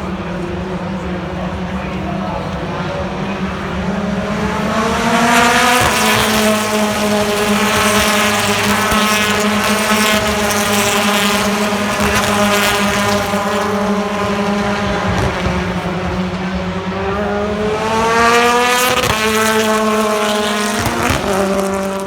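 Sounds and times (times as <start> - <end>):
gear change: 0.0 - 22.0
race car engine accelerating: 0.0 - 22.0.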